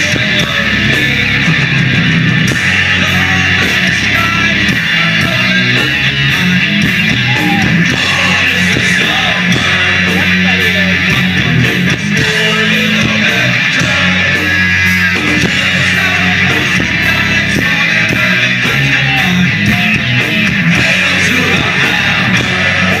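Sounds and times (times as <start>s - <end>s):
heavy metal band playing: 0.0s - 23.0s
faint voices: 2.6s - 23.0s.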